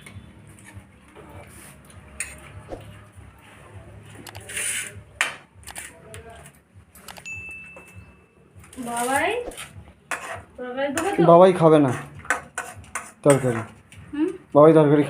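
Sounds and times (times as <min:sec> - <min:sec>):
utensils clinking on plates and pots: 0:11.8 - 0:13.8.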